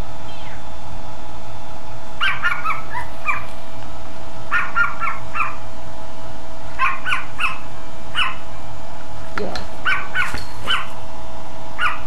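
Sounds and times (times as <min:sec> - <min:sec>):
faint steady hum: 0:00.0 - 0:12.0
small dog yapping: 0:02.2 - 0:03.5, 0:04.5 - 0:05.7, 0:06.8 - 0:08.5, 0:09.8 - 0:11.0, 0:11.8 - 0:12.0.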